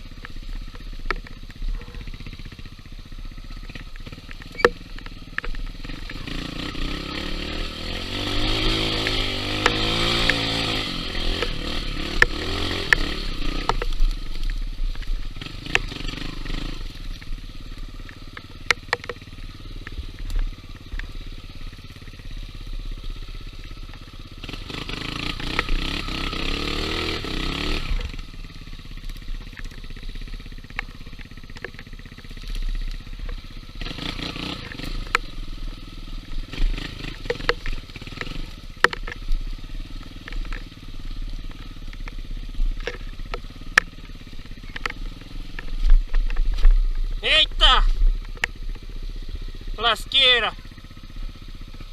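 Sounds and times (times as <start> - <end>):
dirt bike engine revving: 0.0 - 51.9
sharp clicks and knocks: 3.7 - 6.2, 8.9 - 17.4, 18.0 - 21.1, 25.2 - 25.8, 29.1 - 33.9, 34.5 - 35.3, 36.5 - 39.4, 40.1 - 40.7, 41.5 - 47.0.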